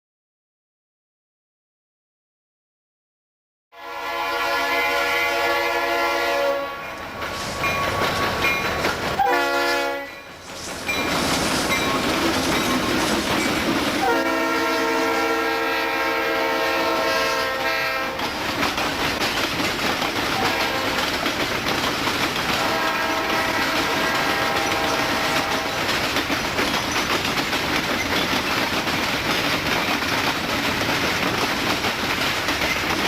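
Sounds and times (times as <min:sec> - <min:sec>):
locomotive air horn blasts: 0:03.8 - 0:07.0, 0:09.2 - 0:10.2, 0:14.0 - 0:18.2, 0:20.4 - 0:21.0, 0:22.6 - 0:25.8
train rumbling and clattering: 0:05.8 - 0:33.0.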